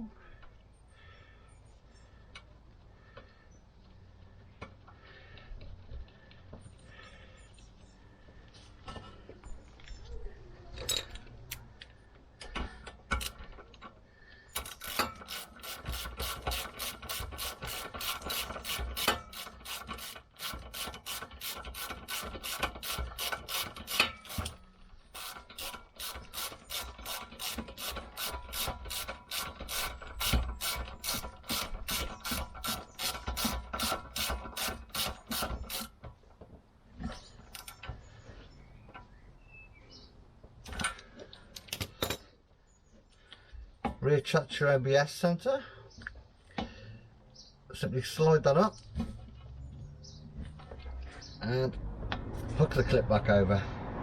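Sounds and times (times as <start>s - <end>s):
hand ratchet clicks: 12.4s - 13.8s, 14.5s - 36.0s.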